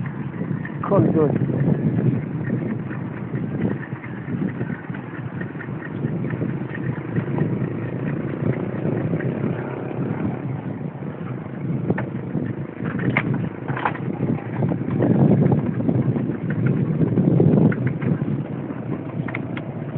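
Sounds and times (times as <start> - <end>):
bike tyre and road noise: 0.0 - 19.9
wind on microphone: 0.0 - 19.9
sharp clicks or rattles: 19.0 - 19.7.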